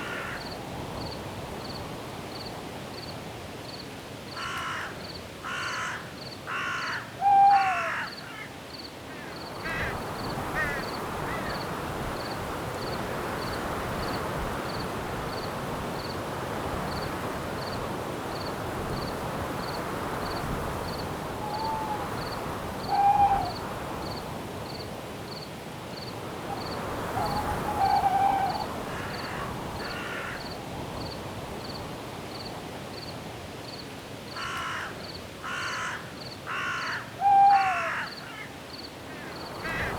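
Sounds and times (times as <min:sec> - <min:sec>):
crow cawing: 0:00.0 - 0:00.5, 0:04.4 - 0:08.5, 0:09.1 - 0:10.0, 0:10.6 - 0:11.6, 0:27.2 - 0:30.6, 0:34.4 - 0:39.9
wind in trees: 0:00.0 - 0:39.9
cricket chirping: 0:16.9 - 0:33.1.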